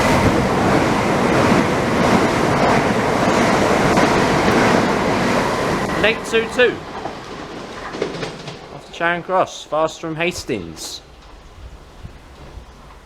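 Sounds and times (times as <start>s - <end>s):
rush of air and wheel noise: 0.0s - 6.4s
electric train passing at speed: 0.0s - 13.0s.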